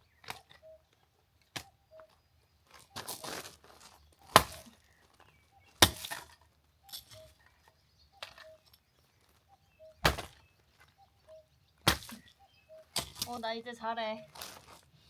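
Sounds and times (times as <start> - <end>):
axe splitting firewood: 4.2 - 4.8, 5.8 - 6.4, 10.0 - 10.4, 11.8 - 12.2, 13.0 - 13.4.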